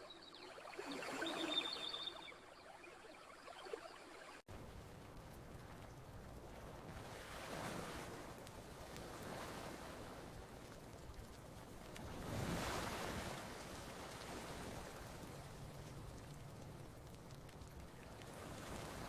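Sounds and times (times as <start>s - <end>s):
faint campfire crackles: 0.0s - 19.0s
ocean waves washing onto beach: 4.3s - 19.0s.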